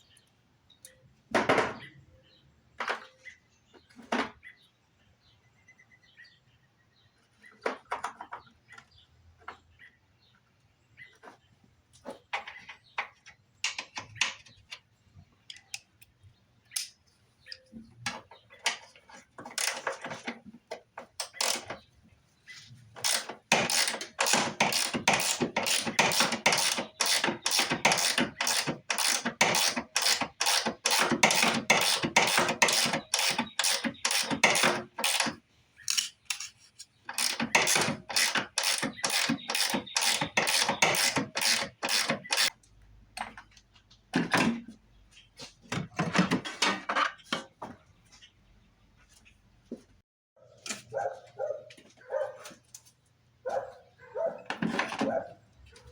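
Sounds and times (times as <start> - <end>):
ratchet wrench clicking: 23.0 - 35.3, 35.9 - 36.5, 37.1 - 42.5.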